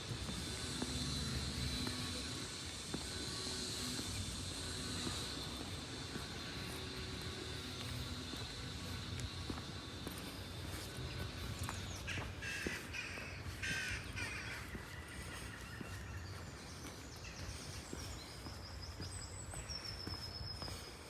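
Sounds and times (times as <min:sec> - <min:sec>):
steady low background hum: 0:00.0 - 0:21.0
bird harsh calls: 0:11.0 - 0:19.0.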